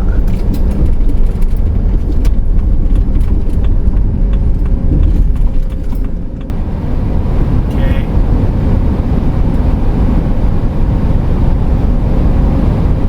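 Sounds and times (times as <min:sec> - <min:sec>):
light clicks and rattles: 0:00.0 - 0:06.5
engine and road rumble: 0:00.0 - 0:13.0.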